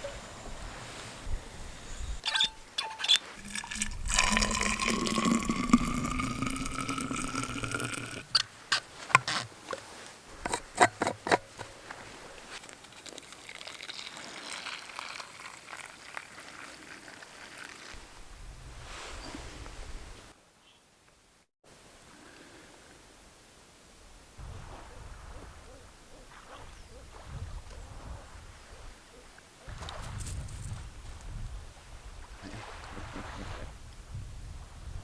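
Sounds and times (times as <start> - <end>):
water pouring into container: 3.4 - 8.4, 12.7 - 18.0.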